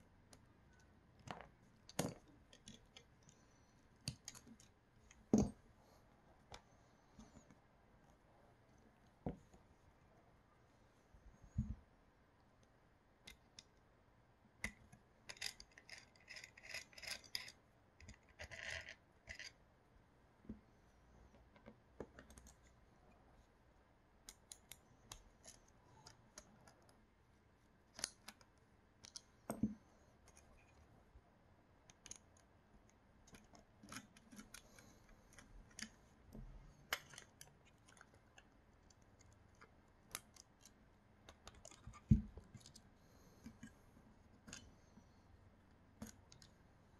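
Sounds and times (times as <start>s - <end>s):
light clicks and taps of tools: 24.2s - 27.0s, 27.9s - 30.9s, 31.8s - 46.7s.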